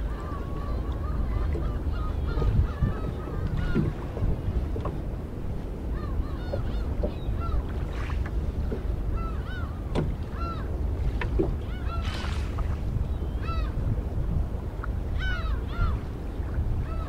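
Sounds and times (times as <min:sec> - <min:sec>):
birds calling: 0:00.0 - 0:04.1, 0:05.9 - 0:10.7, 0:11.6 - 0:13.8
wind and water rumble: 0:00.0 - 0:17.0.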